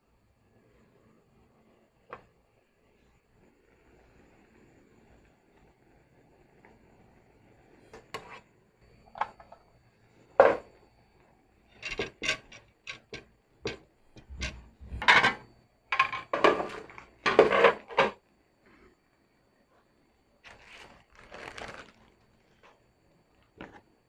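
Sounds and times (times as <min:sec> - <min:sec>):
utensils scraping a dish: 0:11.7 - 0:15.4, 0:16.2 - 0:18.2.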